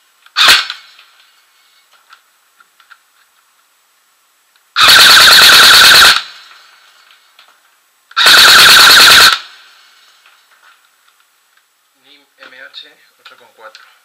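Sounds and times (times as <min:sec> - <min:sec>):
airsoft gun full-auto bursts: 0:00.3 - 0:01.0, 0:04.8 - 0:06.5, 0:08.2 - 0:09.7.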